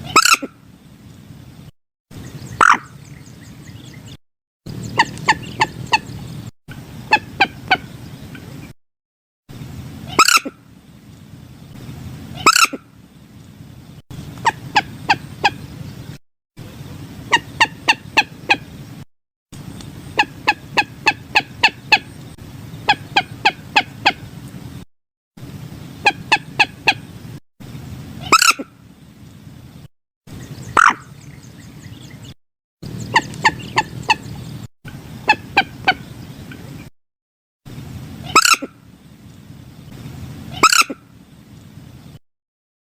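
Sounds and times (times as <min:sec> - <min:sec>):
moorhen calls: 0:00.0 - 0:00.6, 0:02.2 - 0:04.0, 0:04.7 - 0:08.7, 0:10.1 - 0:10.6, 0:12.3 - 0:12.9, 0:14.3 - 0:15.8, 0:17.3 - 0:18.7, 0:19.9 - 0:22.2, 0:22.8 - 0:24.3, 0:26.0 - 0:27.1, 0:28.2 - 0:28.8, 0:30.3 - 0:36.7, 0:38.2 - 0:38.8, 0:40.5 - 0:41.0.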